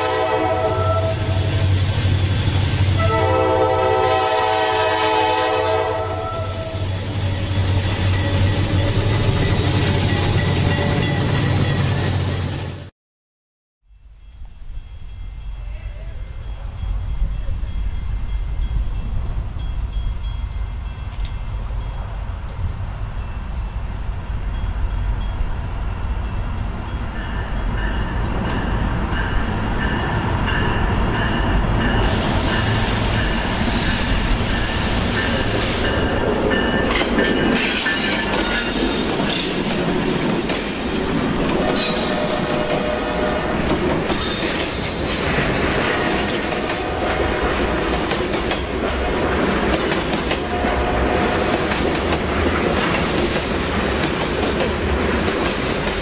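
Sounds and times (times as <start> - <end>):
train rushing noise: 0.0 - 12.9, 14.4 - 56.0
train wheels squealing: 23.2 - 39.9, 40.6 - 45.3
wheels clacking over rail joints: 34.5 - 56.0.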